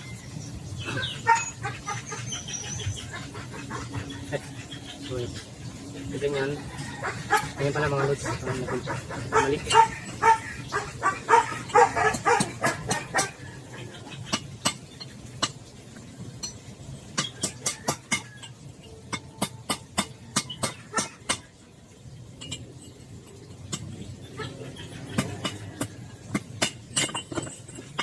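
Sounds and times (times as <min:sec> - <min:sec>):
dog barking: 0:01.2 - 0:01.6, 0:08.3 - 0:13.4
sharp metal taps: 0:14.2 - 0:15.7, 0:16.4 - 0:21.5.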